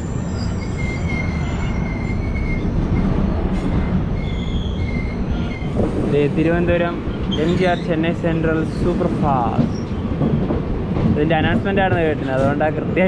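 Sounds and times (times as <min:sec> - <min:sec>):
high wheel squeal: 0:00.0 - 0:03.2, 0:03.8 - 0:05.8
train wheels rumbling: 0:00.0 - 0:13.0.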